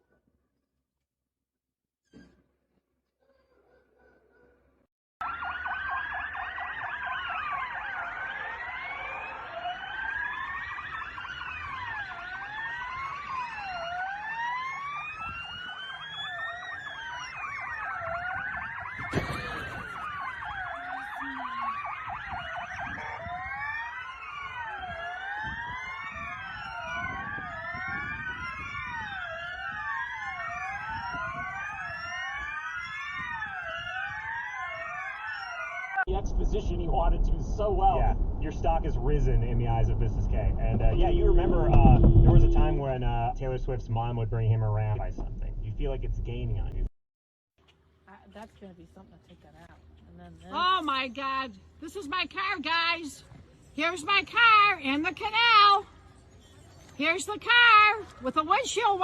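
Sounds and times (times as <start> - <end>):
emergency sirens wailing: 5.2 - 45.8, 53.8 - 56.3, 57.0 - 59.0.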